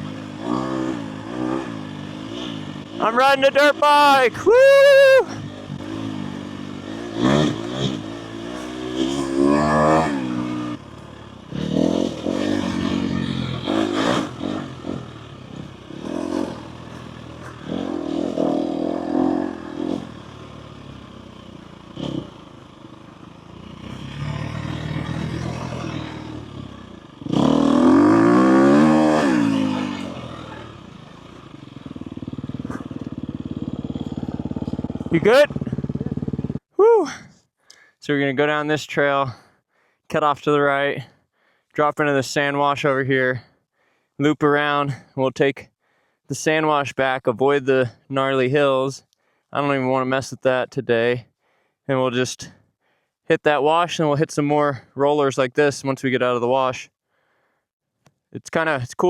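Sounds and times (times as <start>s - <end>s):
dirt bike engine revving: 0.0s - 36.6s.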